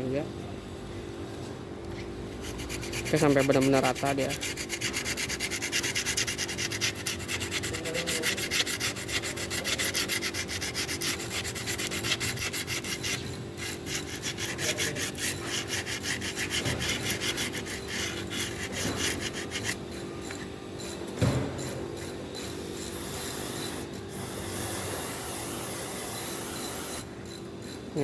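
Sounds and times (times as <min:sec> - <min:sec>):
sandpaper sanding by hand: 0:02.4 - 0:19.8.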